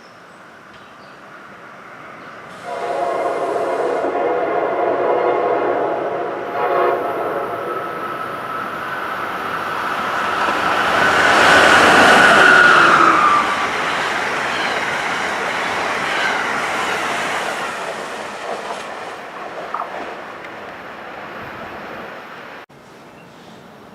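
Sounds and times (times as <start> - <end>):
electric train passing: 0.4 - 22.7
high train whine: 0.4 - 22.7.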